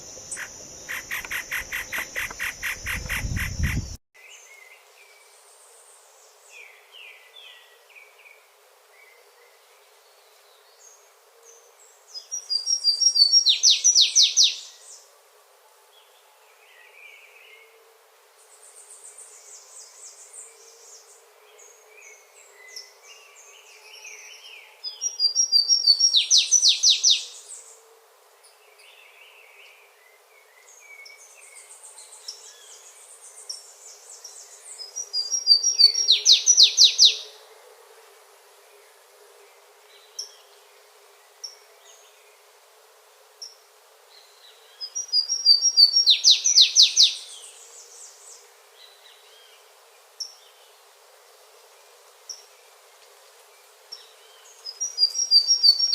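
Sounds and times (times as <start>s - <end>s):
faint chirps: 0.0s - 4.0s
songbird singing: 0.0s - 4.7s, 22.0s - 27.4s, 30.5s - 37.3s, 44.2s - 49.6s, 54.0s - 55.9s.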